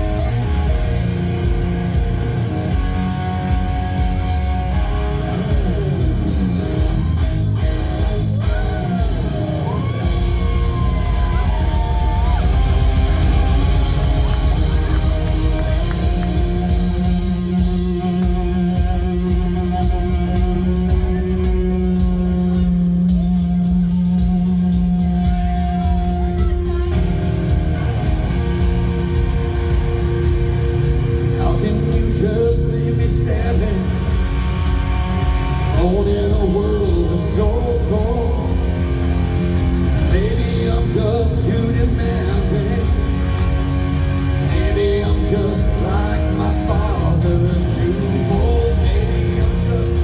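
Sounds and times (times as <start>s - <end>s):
rock band playing: 0.0s - 50.0s
lead vocal singing: 31.2s - 34.4s, 35.7s - 39.0s, 39.9s - 43.4s, 44.4s - 50.0s.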